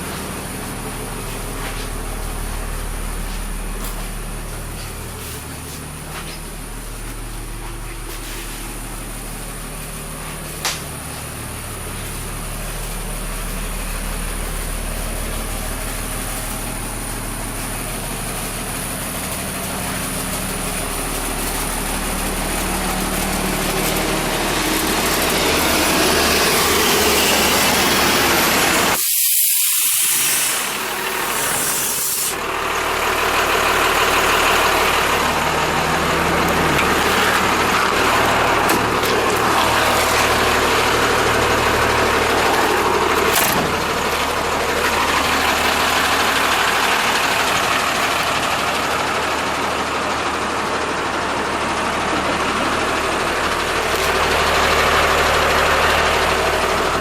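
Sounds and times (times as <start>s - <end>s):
diesel bus engine idling: 0.0s - 57.0s
hissing air rush: 26.5s - 32.4s.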